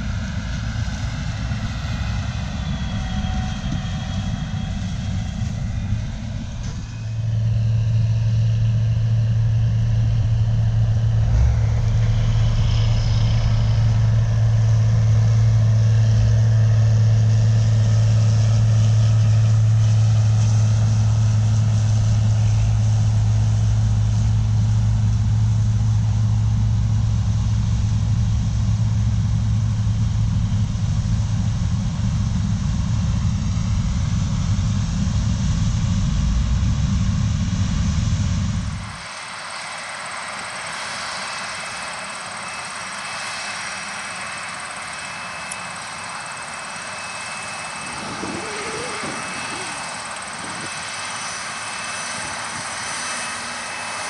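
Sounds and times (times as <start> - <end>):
diesel engines droning: 0.0 - 23.3, 38.2 - 54.0
mechanical whir: 44.1 - 53.8.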